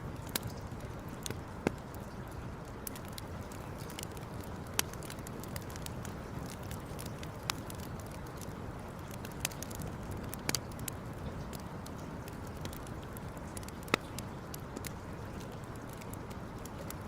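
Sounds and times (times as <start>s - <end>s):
campfire crackling: 0.0s - 17.0s
sharp fire pops: 2.8s - 11.7s.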